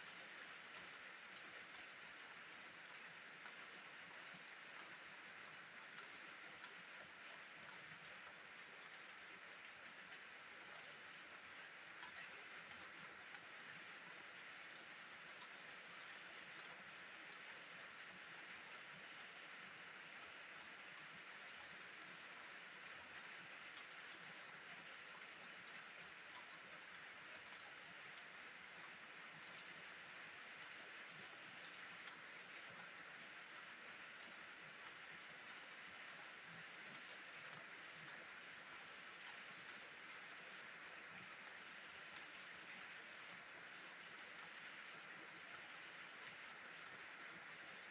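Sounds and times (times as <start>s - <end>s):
raindrop ticks: 12.0s - 13.5s, 14.7s - 17.5s, 26.3s - 28.4s, 29.4s - 29.7s, 45.0s - 45.2s, 46.1s - 46.9s.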